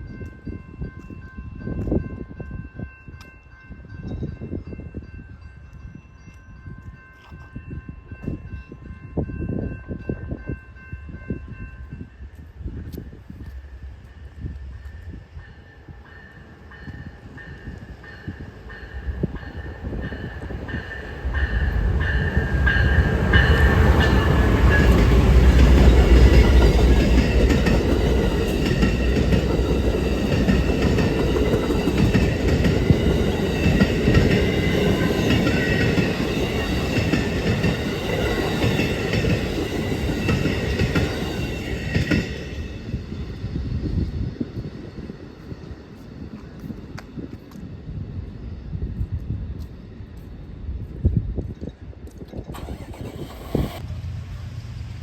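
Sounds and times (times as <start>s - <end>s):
diesel locomotive engine rumble: 12.3s - 55.0s
train wheels clattering on rails: 16.2s - 47.8s.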